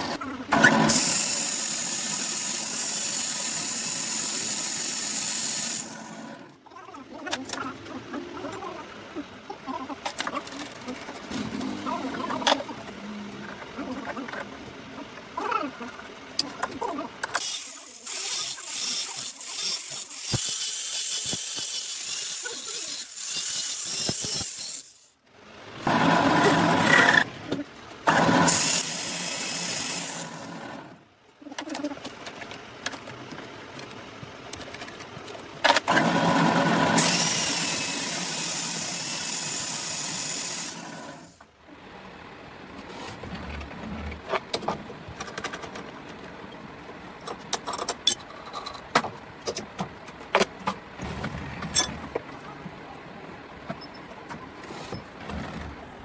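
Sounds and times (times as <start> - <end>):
hissing power tool: 0.6 - 6.3, 28.1 - 30.8, 35.9 - 41.4.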